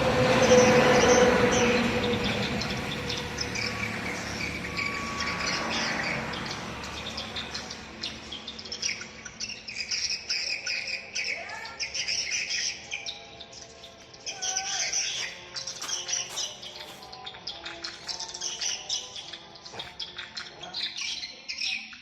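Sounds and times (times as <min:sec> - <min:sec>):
rushing noise: 0:00.0 - 0:08.6
high twittering bird chirps: 0:00.3 - 0:22.0.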